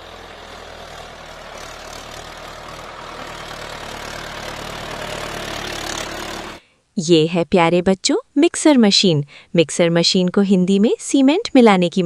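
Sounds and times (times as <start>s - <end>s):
tractor engine humming: 0.0s - 6.6s.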